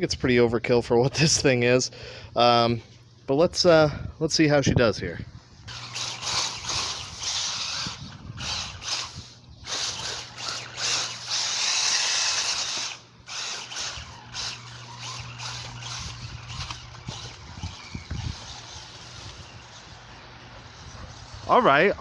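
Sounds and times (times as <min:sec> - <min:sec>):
rc car electric motor whining: 0:05.6 - 0:22.0.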